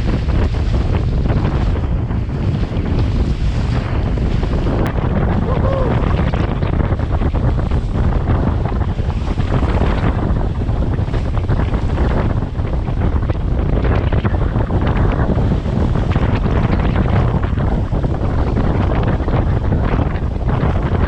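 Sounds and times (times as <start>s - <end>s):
water rushing past boat: 0.0s - 21.0s
waves splashing: 0.0s - 21.0s
wind buffeting microphone: 0.0s - 21.0s.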